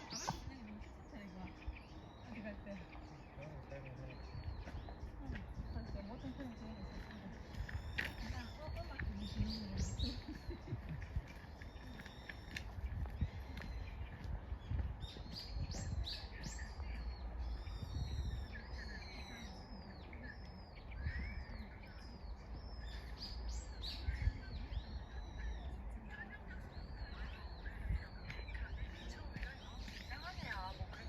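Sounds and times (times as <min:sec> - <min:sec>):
high chirping calls: 0:00.0 - 0:31.0
low wind rumble on microphone: 0:00.0 - 0:31.0.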